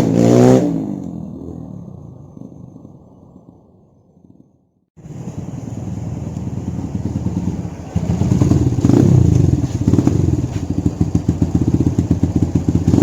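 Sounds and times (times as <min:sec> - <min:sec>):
motorbike engine running: 0:05.0 - 0:13.0.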